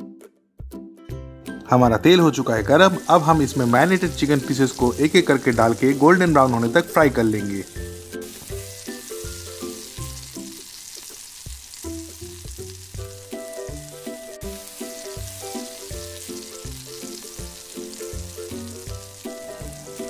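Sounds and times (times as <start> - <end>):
background music with steady beat: 0.0 - 10.6, 11.4 - 20.0
chicken sizzling in hot oil: 2.6 - 20.0.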